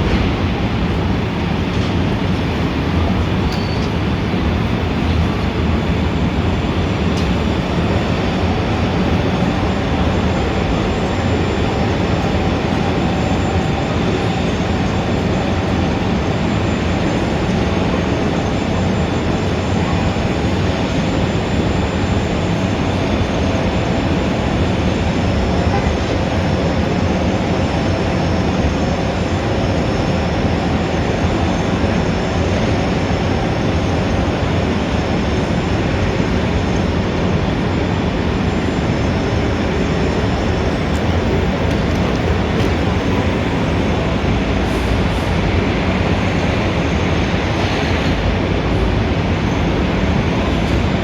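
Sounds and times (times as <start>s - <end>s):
city traffic rumble: 0.0s - 51.0s.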